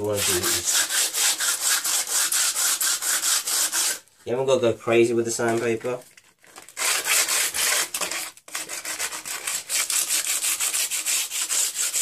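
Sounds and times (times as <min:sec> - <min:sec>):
sandpaper rubbing on painted wood: 0:00.0 - 0:04.0, 0:06.8 - 0:12.0.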